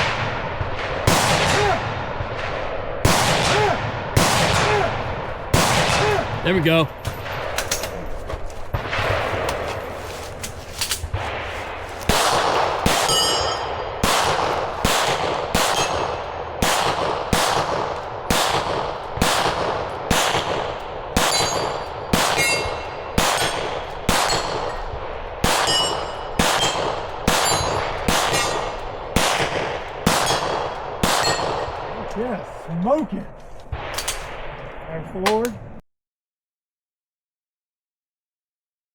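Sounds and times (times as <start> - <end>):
gunshots: 0.0 - 8.1, 8.7 - 32.3
steel targets ringing: 13.0 - 13.8, 15.7 - 16.1, 21.3 - 23.6, 24.2 - 24.9, 25.6 - 28.8.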